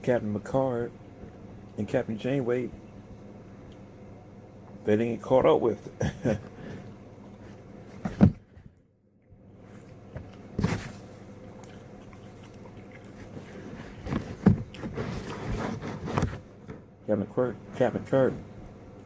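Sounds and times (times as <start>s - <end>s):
person chewing pizza: 9.5s - 15.9s.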